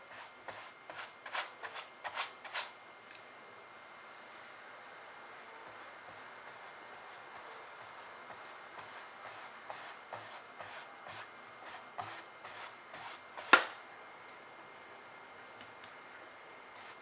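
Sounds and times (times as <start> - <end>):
paintbrush scrubbing canvas: 0.1 - 2.8, 5.4 - 13.6, 16.8 - 17.0.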